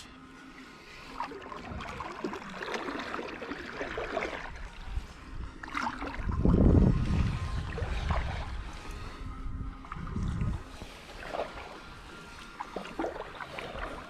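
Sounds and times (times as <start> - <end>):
kayak paddle splashing: 0.6 - 14.0.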